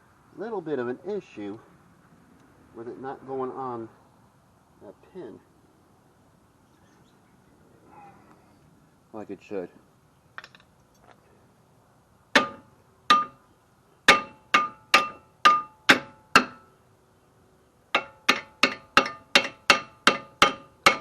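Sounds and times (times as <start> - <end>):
hammer tapping metal: 12.4 - 13.4, 14.1 - 16.6, 18.0 - 21.0.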